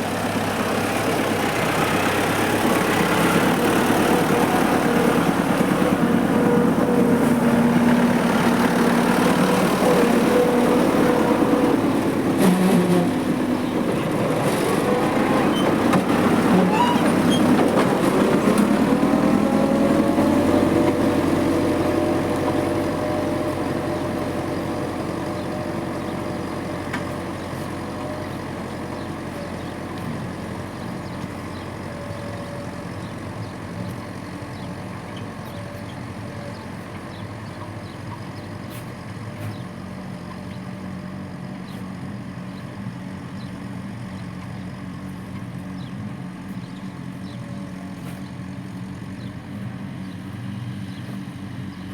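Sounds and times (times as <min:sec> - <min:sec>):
vehicle engine slowing down: 0:00.0 - 0:51.9.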